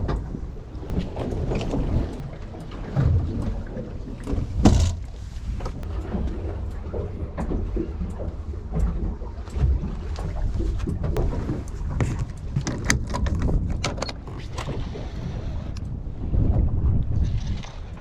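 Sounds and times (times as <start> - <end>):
low rumble: 0.0 - 12.6
water noise: 0.0 - 18.0
wind: 0.0 - 18.0.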